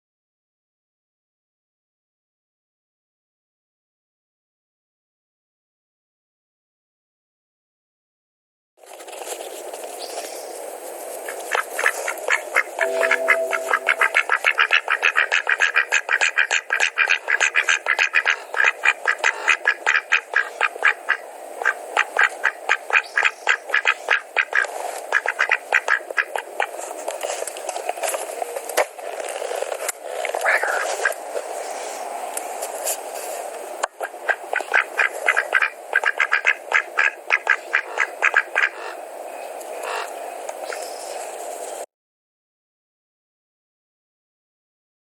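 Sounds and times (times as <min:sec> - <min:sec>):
quack-like animal calls: 0:11.5 - 0:26.7, 0:34.0 - 0:39.0.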